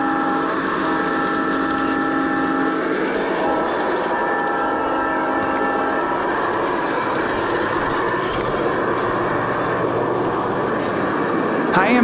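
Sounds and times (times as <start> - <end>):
model train horn: 0.0 - 8.9
train wheels rumbling on track: 0.0 - 12.0.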